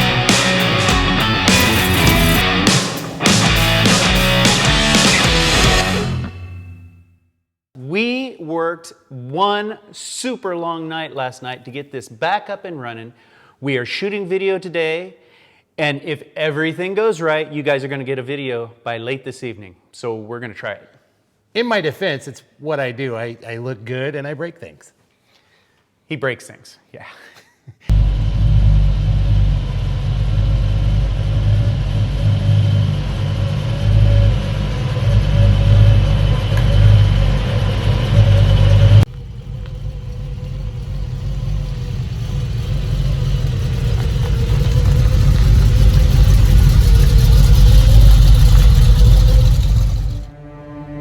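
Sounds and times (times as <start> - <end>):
truck engine running: 0.0 - 6.3, 27.9 - 50.3.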